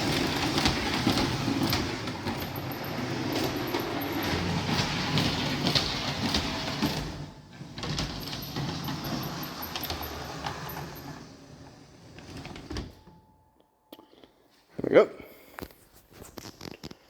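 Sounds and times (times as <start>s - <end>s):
model train rumbling on track: 0.0s - 7.0s.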